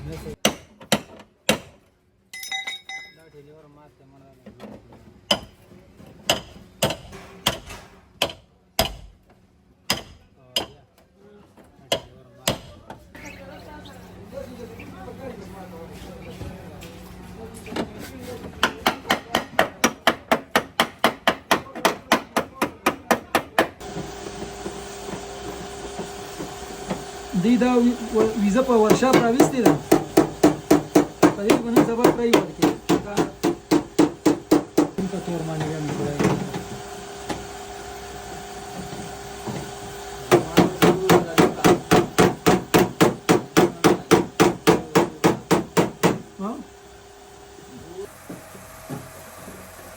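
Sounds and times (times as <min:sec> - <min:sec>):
hammer beating car body panel: 0:18.6 - 0:23.9, 0:28.8 - 0:35.0, 0:40.3 - 0:46.3
steady machine hum: 0:23.8 - 0:49.9.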